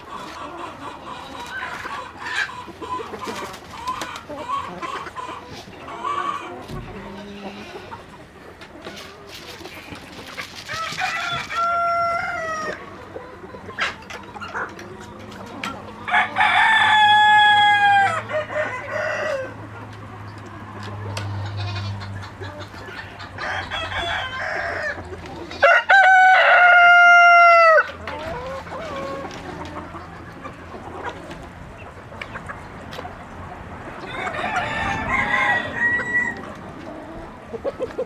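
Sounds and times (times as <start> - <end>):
hens clucking: 0.0 - 38.0
rooster crowing: 10.7 - 12.7, 16.1 - 19.6, 23.4 - 25.0, 25.6 - 28.0, 34.1 - 36.6.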